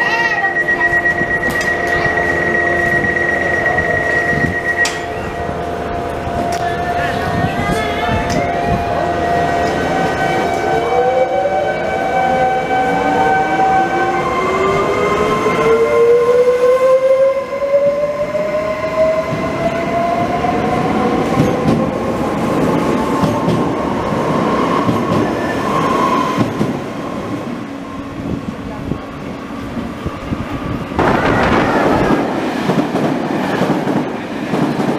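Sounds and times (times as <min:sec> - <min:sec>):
train wheels rumbling on rails: 0:17.9 - 0:34.9.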